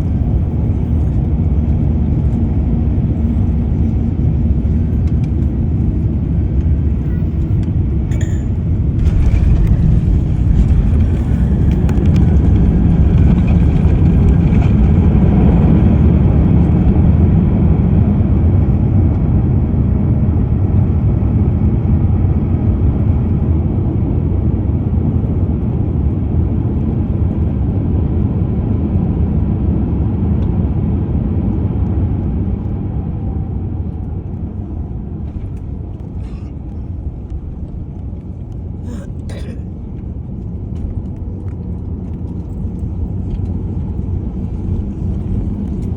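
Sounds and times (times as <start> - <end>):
airliner engines and airflow rumble: 0.0 - 45.9.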